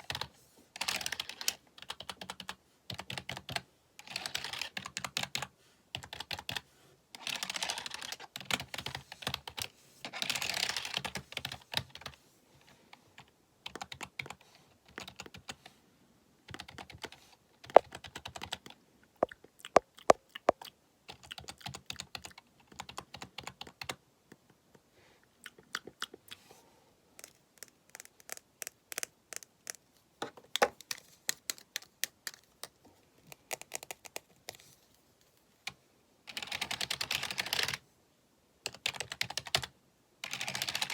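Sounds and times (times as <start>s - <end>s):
computer keyboard typing: 0.0s - 6.6s, 7.2s - 12.2s, 13.2s - 15.6s, 16.5s - 18.8s, 19.7s - 24.0s, 27.2s - 29.8s, 36.3s - 37.8s, 38.6s - 40.9s.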